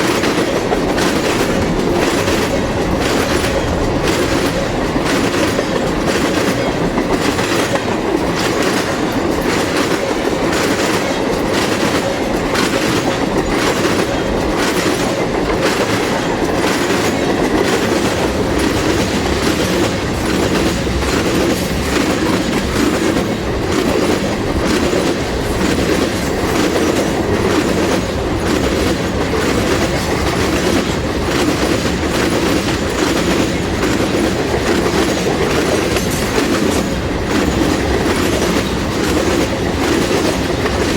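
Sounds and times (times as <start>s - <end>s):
freight train rumbling past: 0.0s - 40.9s
wheels clacking over rail joints: 0.0s - 40.9s.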